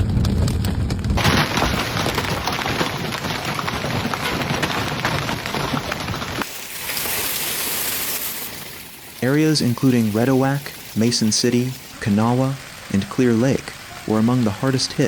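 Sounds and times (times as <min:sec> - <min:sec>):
low rumble: 0:00.0 - 0:01.2
heavy rain pelting down: 0:00.0 - 0:15.0.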